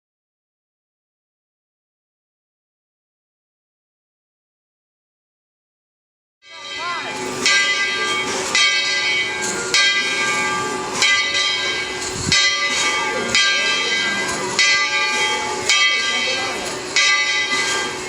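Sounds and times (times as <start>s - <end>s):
locomotive bell ringing: 6.5s - 18.0s
steam hissing: 7.1s - 18.0s.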